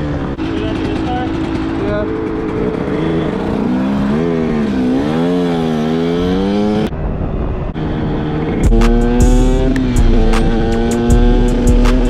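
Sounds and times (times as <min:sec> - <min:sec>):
dirt bike engine revving: 0:00.0 - 0:12.0
hip-hop beat with heavy bass: 0:08.6 - 0:12.0.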